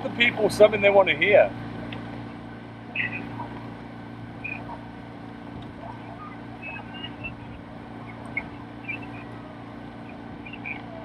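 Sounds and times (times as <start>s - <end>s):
boat engine humming: 0.0s - 11.0s
faint high chirps: 2.9s - 3.6s, 4.4s - 4.9s, 5.8s - 11.0s.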